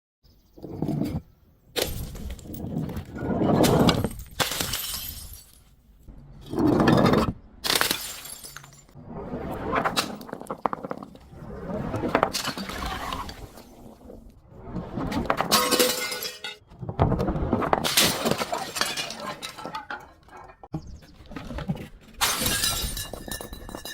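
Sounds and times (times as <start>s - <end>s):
glass bottles smashing: 3.7s - 5.7s, 7.6s - 9.0s, 15.5s - 16.6s, 17.8s - 20.5s, 22.2s - 23.9s.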